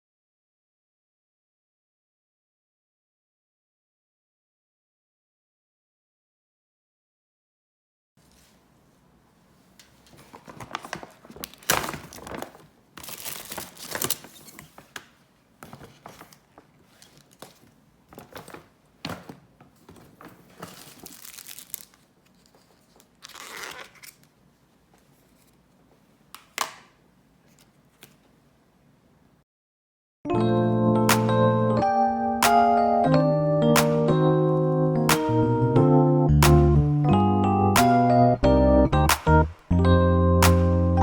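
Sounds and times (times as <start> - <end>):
rustling and crinkling: 9.5 - 26.1.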